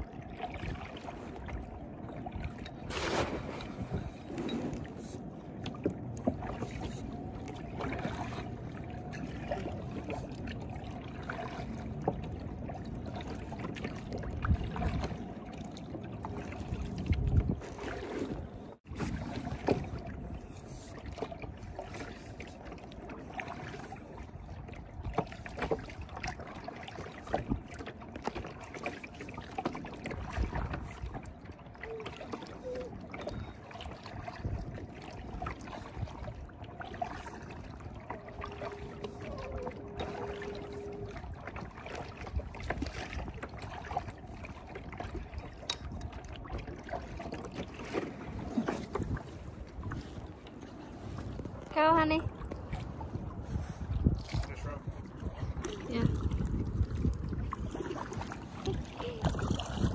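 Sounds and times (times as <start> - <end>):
wind on microphone: 0.0 - 5.2, 14.2 - 15.4, 16.5 - 22.4, 30.1 - 44.3, 48.2 - 59.9
small water splashes: 0.0 - 59.9
faint held tone: 38.1 - 41.4.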